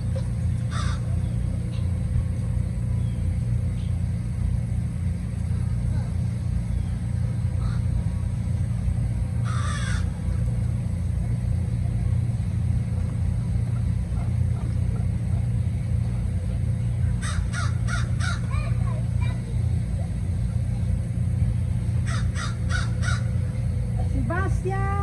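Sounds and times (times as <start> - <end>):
steady low rumble: 0.0 - 25.0
bird calling: 0.6 - 1.9, 7.6 - 8.0, 9.4 - 10.2, 17.2 - 18.7, 22.0 - 23.6.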